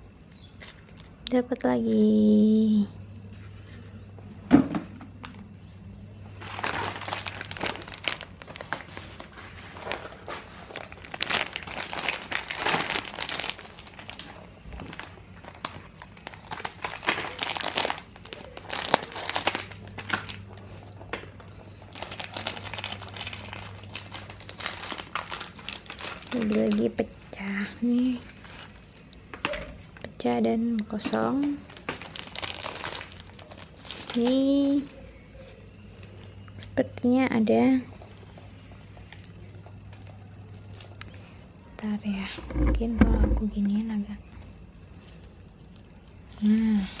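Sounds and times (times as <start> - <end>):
faint low hum: 0.0 - 29.3, 33.2 - 47.0
plastic wrappers crinkling: 6.2 - 30.2, 31.4 - 36.4, 39.0 - 41.2.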